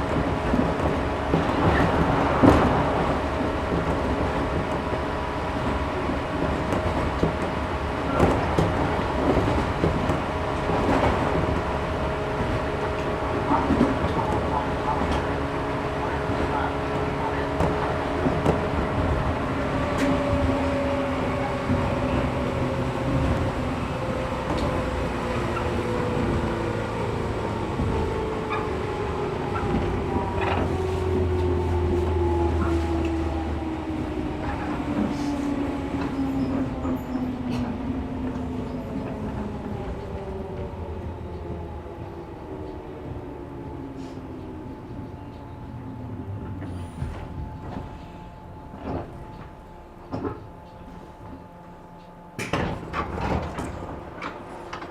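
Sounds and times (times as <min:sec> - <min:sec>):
track knocks: 0:00.0 - 0:15.4
wheels rumbling on rails: 0:00.0 - 0:54.9.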